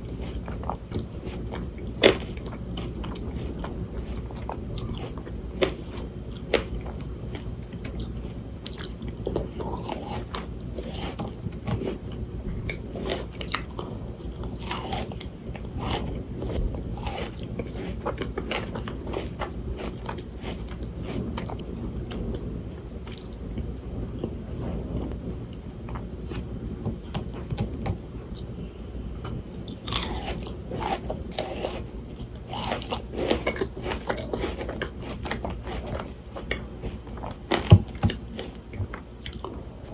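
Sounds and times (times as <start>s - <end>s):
crunching frozen grapes: 0.0s - 21.6s, 29.7s - 39.5s.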